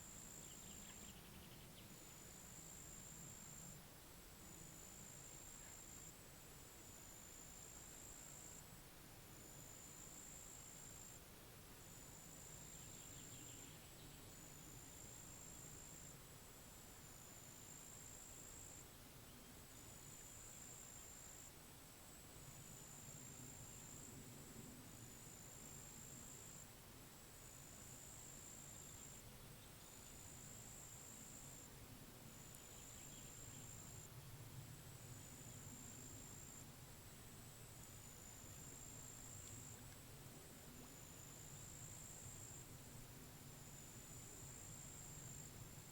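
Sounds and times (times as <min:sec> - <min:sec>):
faint chirping: 0:00.0 - 0:06.1, 0:11.9 - 0:16.1, 0:28.3 - 0:31.7, 0:32.3 - 0:34.2
outdoor ambience hush: 0:00.0 - 0:45.9.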